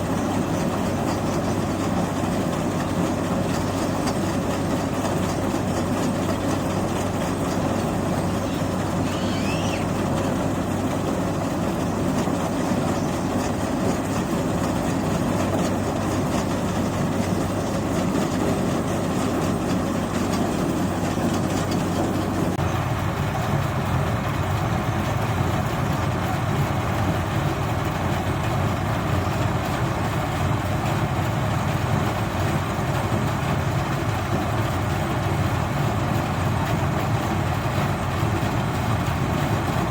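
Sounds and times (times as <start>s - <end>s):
machine engine running: 0.0s - 39.9s.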